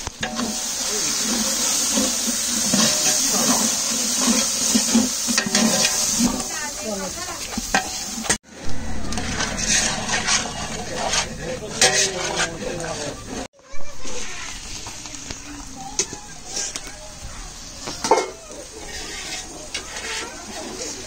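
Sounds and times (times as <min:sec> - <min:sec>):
onions sizzling in oil: 0:00.0 - 0:12.4, 0:14.0 - 0:21.0
metal spatula scraping a pot: 0:00.2 - 0:06.5, 0:07.4 - 0:13.5, 0:18.0 - 0:21.0.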